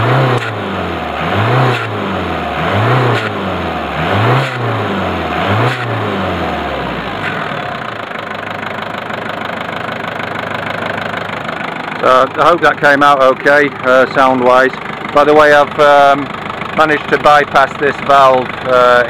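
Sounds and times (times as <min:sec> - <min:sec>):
car engine revving: 0:00.0 - 0:08.7
car engine idling: 0:00.0 - 0:19.0.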